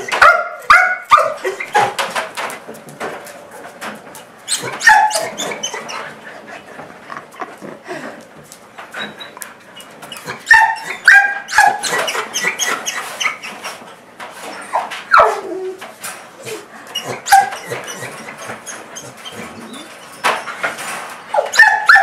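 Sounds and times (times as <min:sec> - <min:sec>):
dog squealing and whining: 0:04.5 - 0:06.2, 0:08.9 - 0:13.8, 0:16.4 - 0:22.0.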